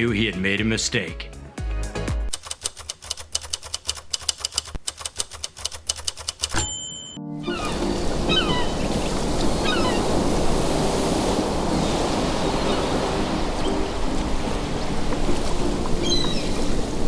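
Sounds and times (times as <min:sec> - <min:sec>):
birds chirping: 0:07.4 - 0:17.0
ocean surf washing: 0:07.4 - 0:17.0.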